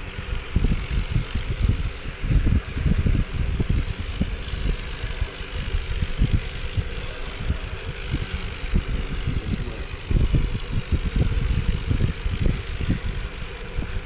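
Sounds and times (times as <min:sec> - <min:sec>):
wind buffeting microphone: 0:00.1 - 0:14.0.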